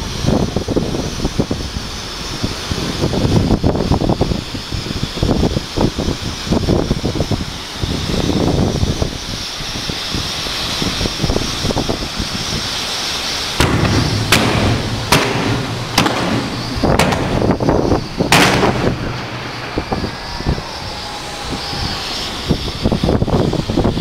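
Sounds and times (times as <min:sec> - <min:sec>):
fireworks bangs: 0:13.6 - 0:20.7.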